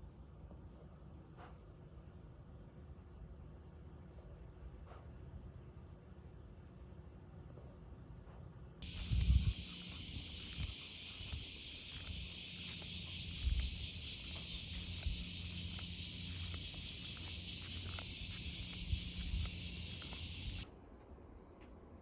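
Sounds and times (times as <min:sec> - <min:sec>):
faint low hum: 0:08.8 - 0:20.6
insects chirring: 0:08.8 - 0:20.6.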